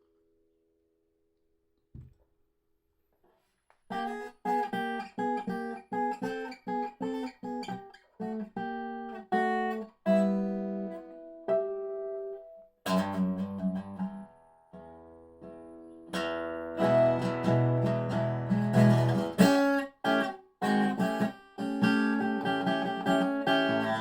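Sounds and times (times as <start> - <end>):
soft knock: 1.9 - 2.3.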